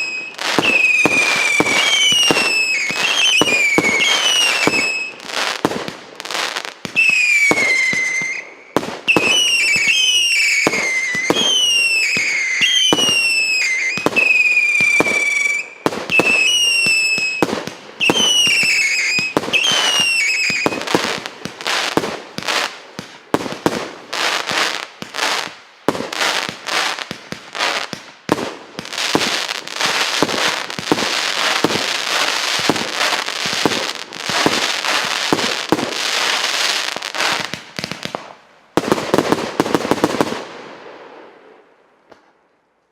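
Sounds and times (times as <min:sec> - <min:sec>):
firework whistles: 0:00.0 - 0:05.7, 0:06.5 - 0:22.7, 0:28.8 - 0:38.0
firework crackling: 0:00.0 - 0:41.3
firework bangs: 0:00.0 - 0:41.6.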